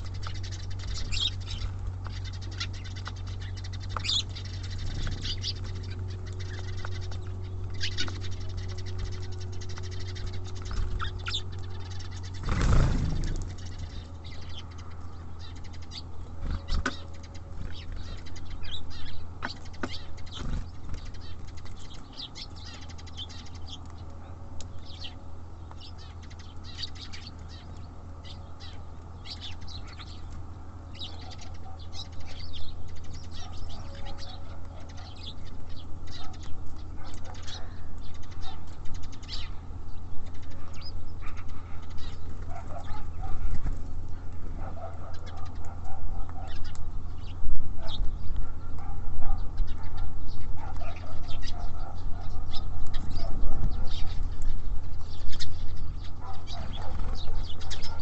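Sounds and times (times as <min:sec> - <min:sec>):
steady low hum: 0:00.0 - 0:58.0
bird wings fluttering: 0:12.4 - 0:13.5.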